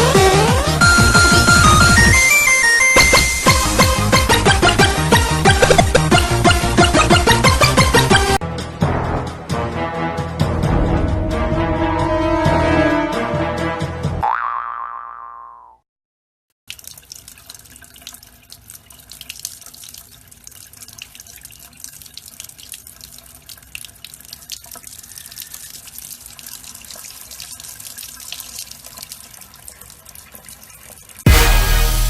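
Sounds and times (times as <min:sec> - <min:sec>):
loud music: 0:00.0 - 0:14.2, 0:31.3 - 0:32.0
water trickling into sink: 0:16.7 - 0:31.2.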